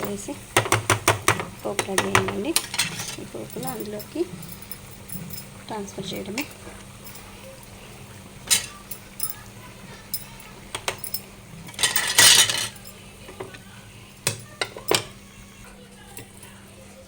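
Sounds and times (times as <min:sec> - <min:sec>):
metal spoon scraping a pan: 0:02.6 - 0:03.4.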